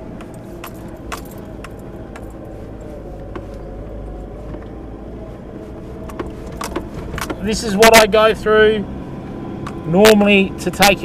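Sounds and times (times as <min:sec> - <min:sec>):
loose keys rattling: 0:00.0 - 0:02.8
vehicle engine and tyres rumbling: 0:00.0 - 0:11.0.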